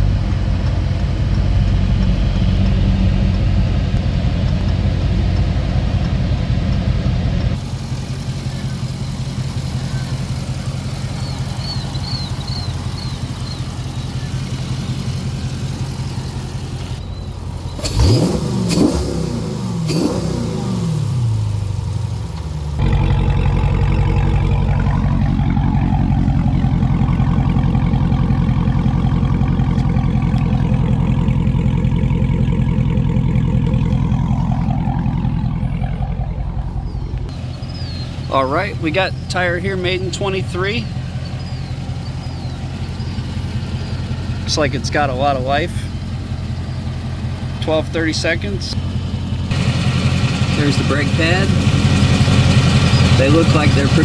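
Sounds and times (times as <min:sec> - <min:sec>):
car engine idling: 0:00.0 - 0:54.0
engine revving: 0:00.0 - 0:54.0.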